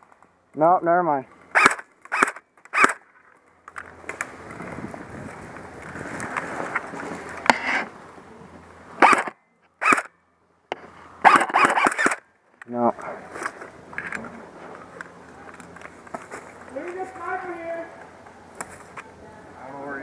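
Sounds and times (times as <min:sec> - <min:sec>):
airsoft rifle shots: 0:01.5 - 0:03.1, 0:09.0 - 0:10.1, 0:11.2 - 0:12.2
rattling burst of shots: 0:11.2 - 0:12.2.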